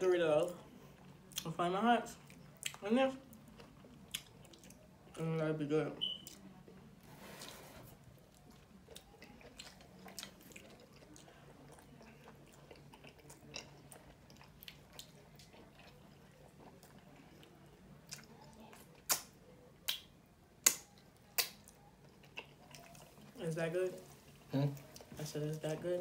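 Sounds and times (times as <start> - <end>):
close chewing of soft food: 0.4 - 5.3, 6.2 - 23.4, 24.0 - 26.0
loud sharp lip smacks: 19.0 - 21.6
wet mouth clicks: 19.1 - 19.3.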